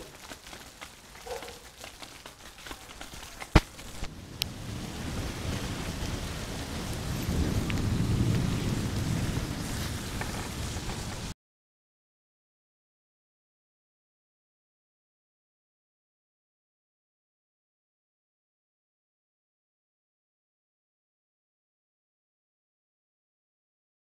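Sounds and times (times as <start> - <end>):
rain hissing on street: 0.0 - 11.4.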